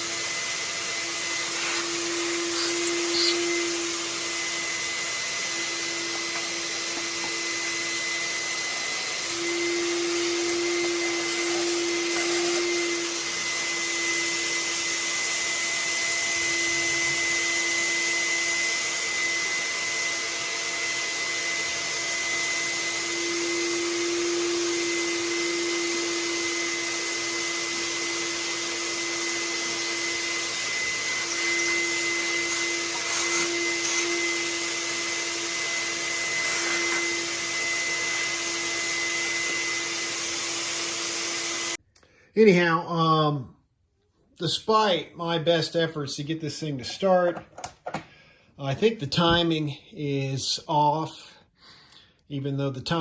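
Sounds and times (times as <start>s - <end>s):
shop vacuum running: 0.0s - 41.8s.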